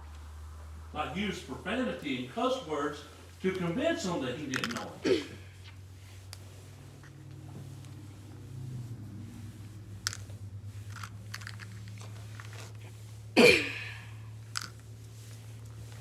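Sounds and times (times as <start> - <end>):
low electrical hum: 0.0 - 16.0
short cough-like throat sound: 13.4 - 13.9.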